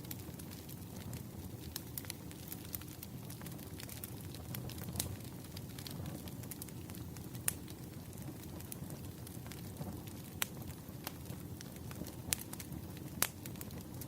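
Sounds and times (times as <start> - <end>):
wood campfire crackling: 0.0 - 14.0.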